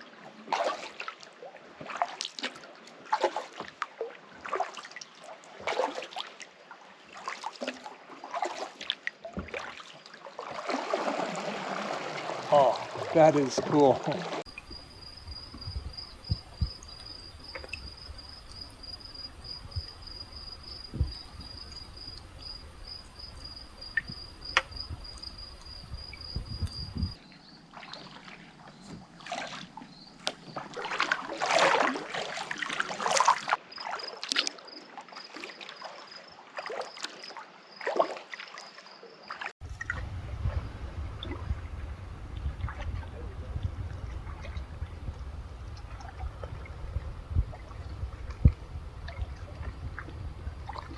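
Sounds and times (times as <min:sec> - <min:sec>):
water splashing from paddle strokes: 0:01.8 - 0:05.0, 0:05.6 - 0:06.4, 0:07.1 - 0:27.2, 0:27.8 - 0:34.5, 0:39.6 - 0:50.9
insect trilling: 0:14.5 - 0:27.2.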